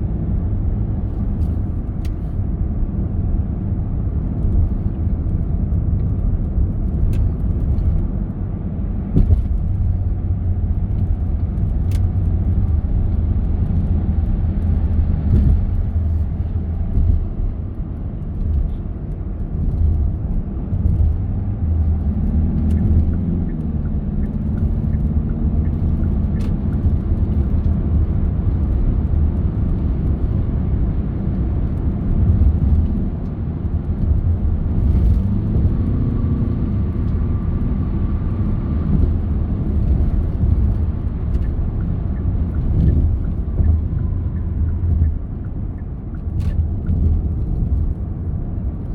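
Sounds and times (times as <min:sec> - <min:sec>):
car engine and tyres rumbling: 0:00.0 - 0:48.9.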